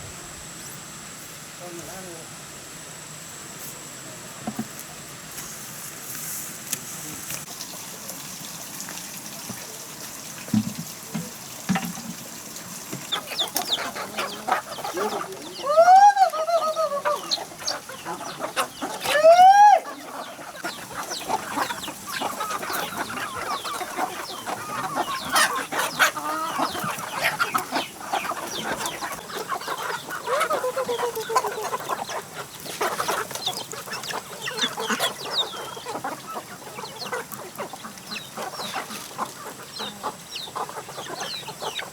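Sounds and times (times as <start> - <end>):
chickens clucking: 1.6 - 41.9
loud chicken calls: 13.0 - 41.9.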